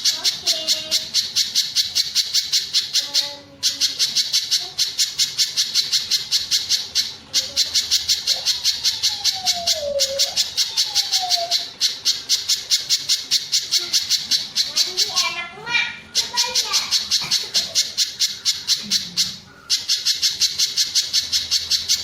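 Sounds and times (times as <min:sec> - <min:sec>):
bird high chip notes: 0:00.0 - 0:22.0.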